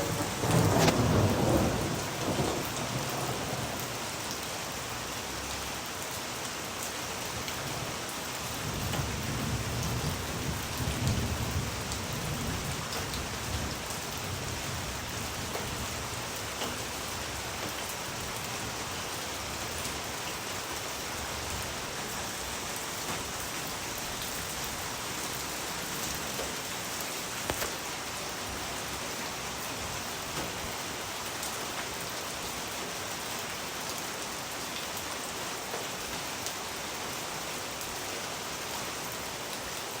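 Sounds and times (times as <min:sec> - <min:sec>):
thunder rolling: 0:00.0 - 0:04.3
steady rain: 0:00.0 - 0:40.0.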